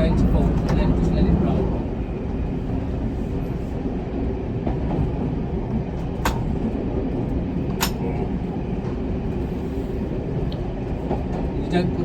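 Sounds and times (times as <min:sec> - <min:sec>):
railcar low rumble: 0:00.0 - 0:12.0.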